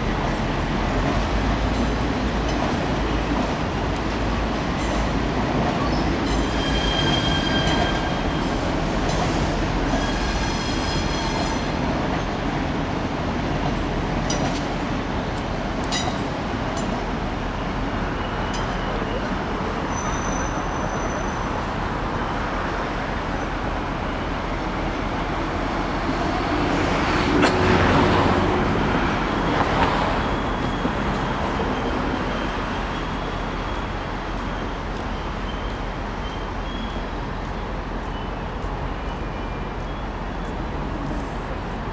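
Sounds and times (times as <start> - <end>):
train rumbling: 0.0 - 41.9.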